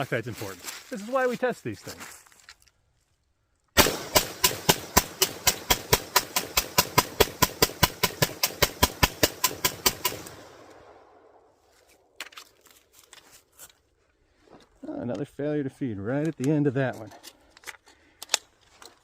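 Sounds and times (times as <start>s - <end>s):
pistol rapid gunshots echoing: 3.8s - 10.6s
gun handling clicks: 16.2s - 18.9s.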